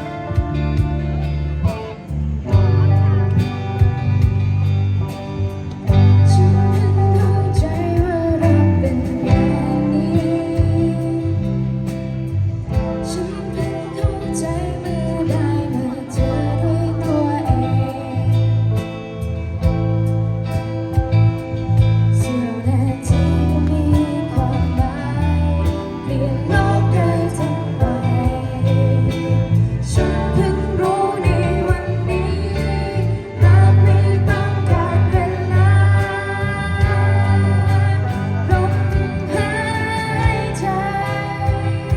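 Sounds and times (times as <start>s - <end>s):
band playing a song: 0.0s - 41.9s
person singing: 5.9s - 19.3s, 22.2s - 41.9s.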